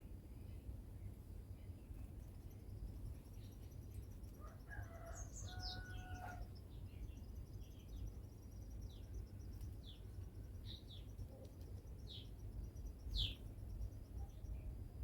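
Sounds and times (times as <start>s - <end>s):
birds chirping faintly: 0.0s - 15.0s
steady low rumble: 6.5s - 15.0s.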